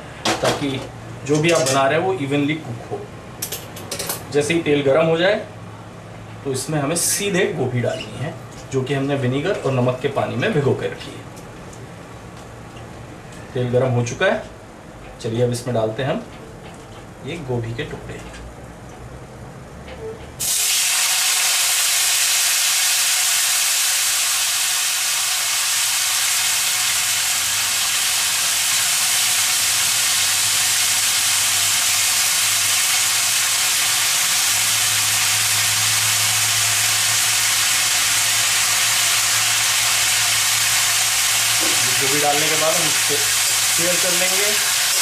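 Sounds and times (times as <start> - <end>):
vegetables sizzling in hot oil: 20.4 - 45.0.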